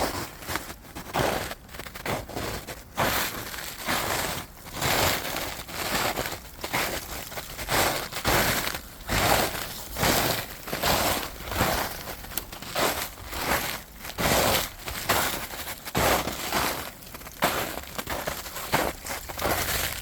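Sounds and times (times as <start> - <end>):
footsteps crunching on trail: 0.0 - 20.0.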